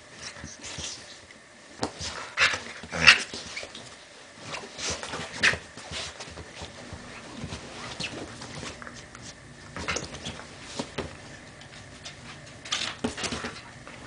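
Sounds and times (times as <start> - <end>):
dog snuffling and scuffling: 3.3 - 14.0.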